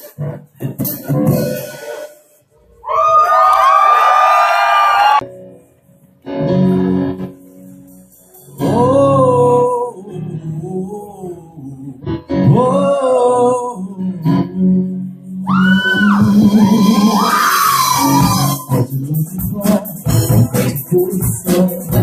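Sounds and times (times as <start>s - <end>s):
bass notes: 6.3s - 22.0s.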